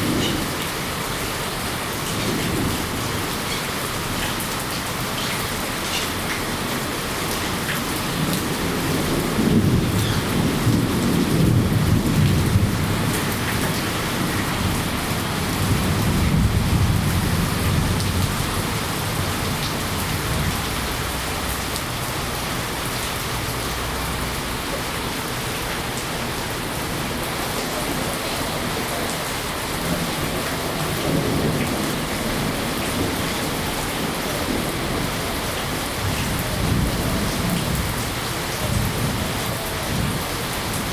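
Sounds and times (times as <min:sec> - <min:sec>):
steady rain: 0:00.0 - 0:40.9
rolling thunder: 0:08.1 - 0:20.8.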